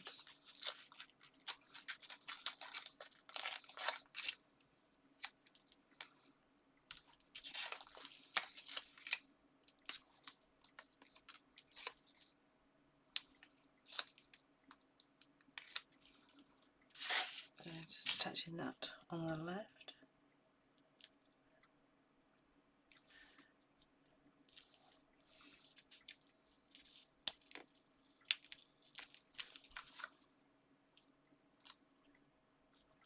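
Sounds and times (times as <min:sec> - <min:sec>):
paper rustling and crinkling: 0:00.0 - 0:05.6, 0:07.0 - 0:12.3, 0:17.0 - 0:18.2.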